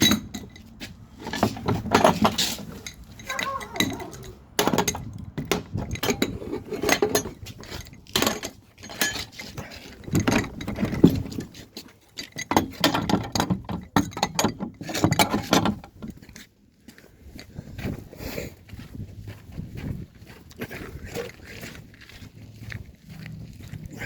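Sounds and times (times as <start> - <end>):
metal tools clinking: 0.0 - 16.2.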